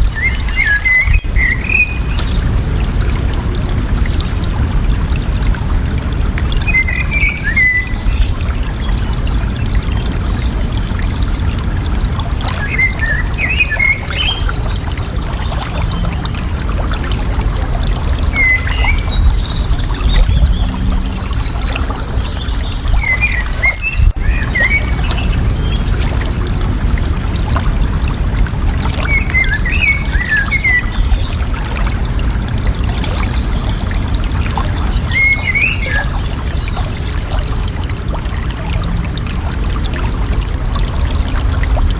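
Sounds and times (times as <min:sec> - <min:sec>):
water flowing and gurgling: 0:00.0 - 0:41.9
bird chirping: 0:00.1 - 0:02.4, 0:06.5 - 0:08.0.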